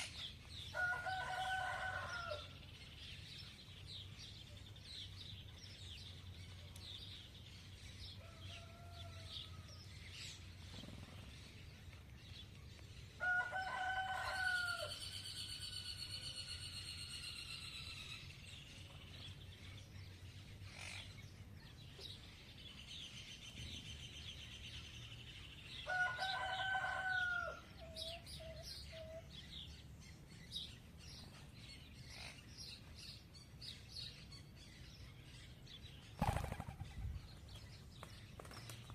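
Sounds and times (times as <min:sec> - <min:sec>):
small birds chirping: 0:00.0 - 0:13.2
rooster crowing: 0:00.7 - 0:02.6, 0:08.2 - 0:09.8, 0:13.2 - 0:15.0, 0:25.8 - 0:27.7.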